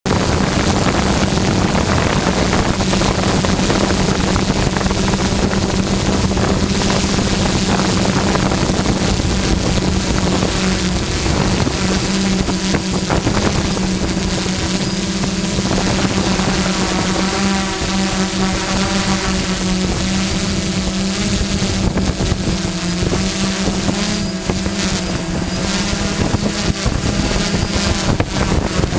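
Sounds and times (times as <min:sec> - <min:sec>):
boat engine running: 0:00.1 - 0:28.9
drone propellers whirring: 0:00.1 - 0:28.9
wind on microphone: 0:00.1 - 0:28.9.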